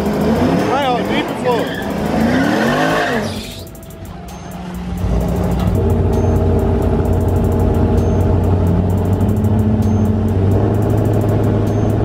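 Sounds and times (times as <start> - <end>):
drag car engine idling low: 3.6 - 12.0.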